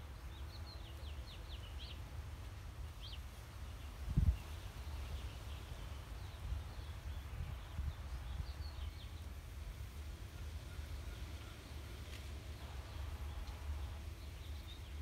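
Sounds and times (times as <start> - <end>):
steady low rumble: 4.0 - 15.0.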